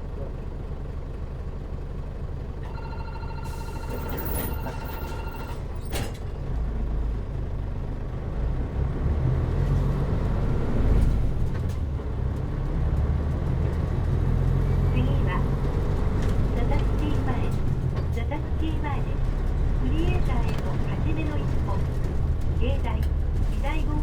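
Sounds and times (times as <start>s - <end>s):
bus diesel engine rumble: 0.0s - 24.0s
rapid electronic warning beep: 2.7s - 5.6s
bus doors clacking shut: 3.5s - 6.6s.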